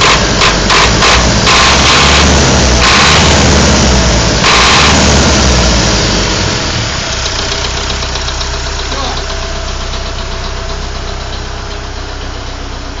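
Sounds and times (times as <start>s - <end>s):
fast regular knocking tick: 0.0s - 3.3s
car engine idling: 0.0s - 13.0s.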